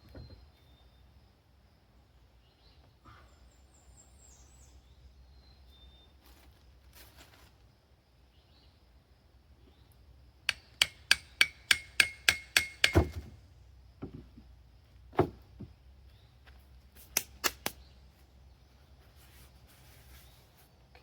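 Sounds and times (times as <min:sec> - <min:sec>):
hammer striking steel: 0:10.5 - 0:13.2.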